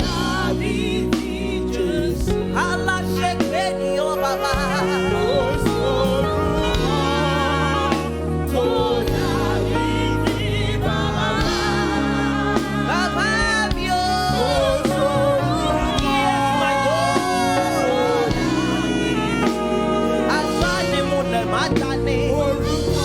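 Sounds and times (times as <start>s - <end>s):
gospel singing: 0.0s - 23.0s
held instrumental chords: 0.0s - 23.0s
steady bass: 0.0s - 23.0s.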